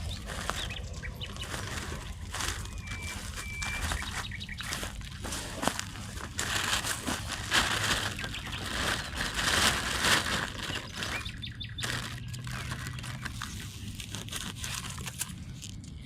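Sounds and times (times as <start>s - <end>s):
rustling and crackling: 0.0s - 15.9s.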